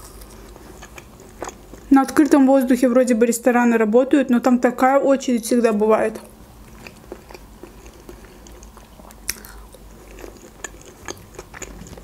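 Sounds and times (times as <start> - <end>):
crunchy chewing: 0.0 - 1.9, 6.6 - 12.0.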